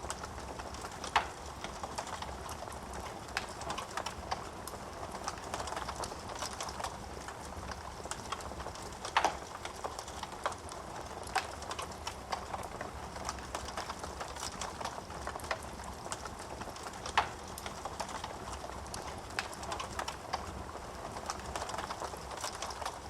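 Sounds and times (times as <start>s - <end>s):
loud fire snaps: 0.0s - 23.0s
wood fire crackling: 0.0s - 23.0s.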